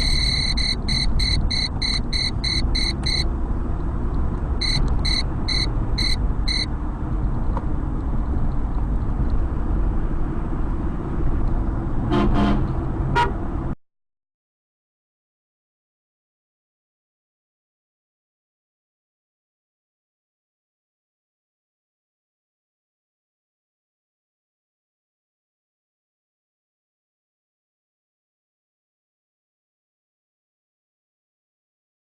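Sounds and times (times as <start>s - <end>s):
car horn honking: 0.0s - 3.3s, 4.6s - 6.7s, 12.1s - 13.4s
road and engine noise: 0.0s - 13.8s.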